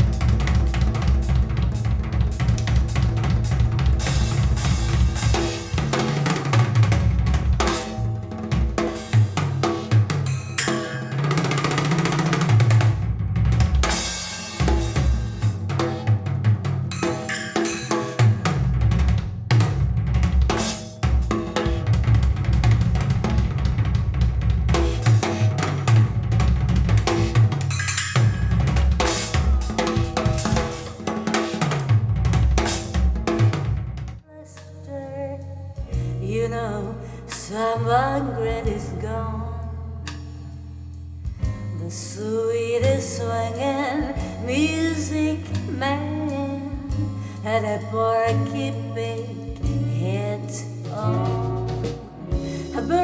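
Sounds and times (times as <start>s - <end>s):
drum kit music over loudspeakers: 0.0s - 34.1s, 41.3s - 41.9s, 43.7s - 47.5s, 48.2s - 53.0s.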